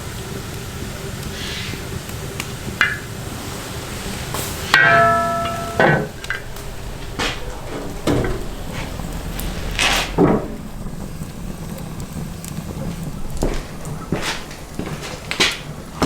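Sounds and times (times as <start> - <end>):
utensils and dishes clattering: 4.2 - 16.0.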